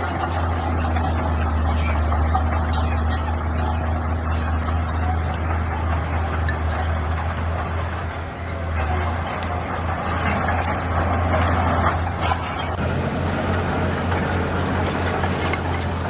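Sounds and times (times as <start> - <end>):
metallic clinks and clanks: 0.0 - 12.8
heavy diesel machinery engine hum: 0.0 - 16.0.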